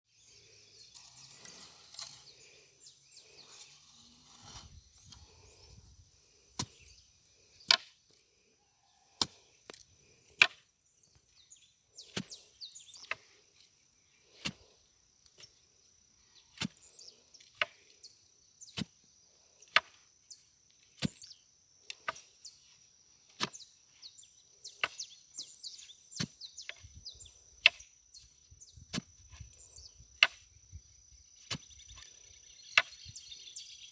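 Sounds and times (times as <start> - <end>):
digging tool striking hard ground: 6.6 - 7.0, 9.2 - 9.5, 12.0 - 13.3, 16.5 - 16.9, 20.8 - 22.4, 23.3 - 23.6, 28.9 - 29.5, 30.2 - 30.5
bird chirps: 10.9 - 13.2, 23.5 - 33.9.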